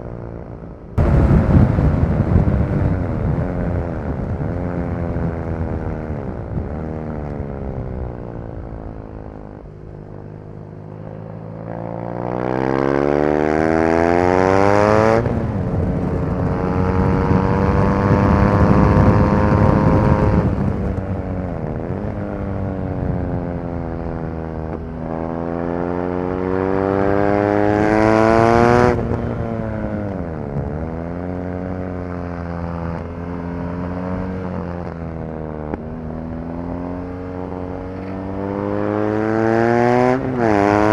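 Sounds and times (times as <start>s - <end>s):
motorcycle engine revving: 1.0s - 40.9s.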